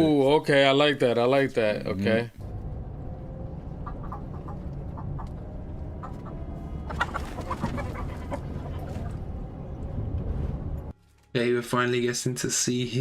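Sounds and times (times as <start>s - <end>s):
low steady rumble: 2.4s - 11.0s
chickens clucking: 3.6s - 9.4s.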